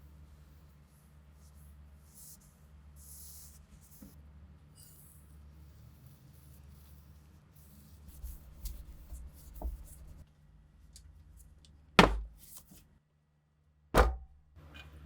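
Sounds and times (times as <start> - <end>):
loud sharp ringing knocks: 14.0 - 14.4.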